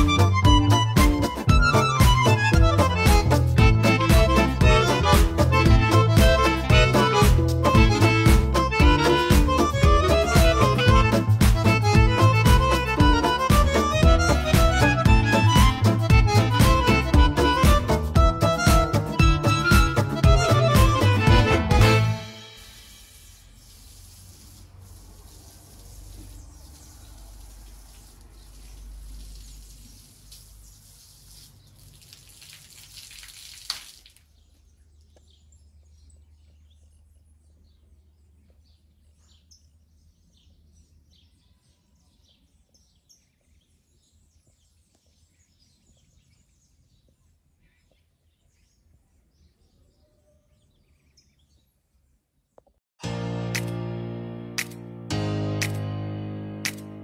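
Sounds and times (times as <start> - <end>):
steady hiss: 22.3 - 31.5
small birds chirping: 23.5 - 52.8.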